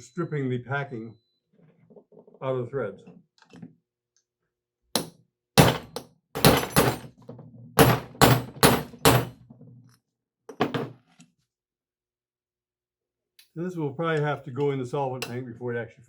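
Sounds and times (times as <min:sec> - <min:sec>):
hammer striking metal: 0:07.8 - 0:09.3.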